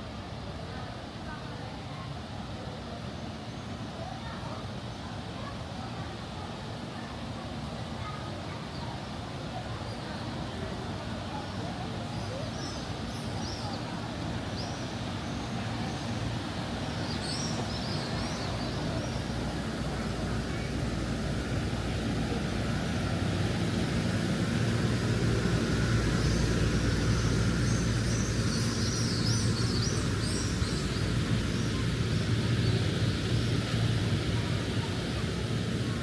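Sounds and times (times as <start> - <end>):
low engine rumble: 14.0 - 36.0
light high chirps: 23.7 - 33.9.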